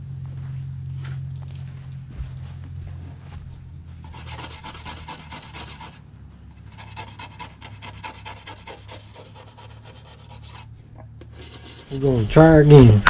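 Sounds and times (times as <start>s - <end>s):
steady low hum: 0.0s - 13.0s
rapid scrubbing strokes: 4.0s - 6.0s, 6.6s - 12.5s.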